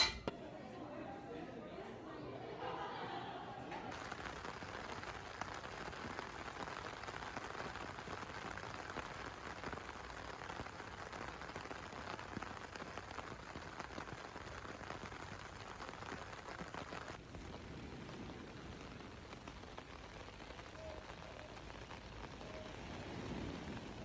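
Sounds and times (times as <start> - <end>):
water patter and hiss: 3.9 - 24.0.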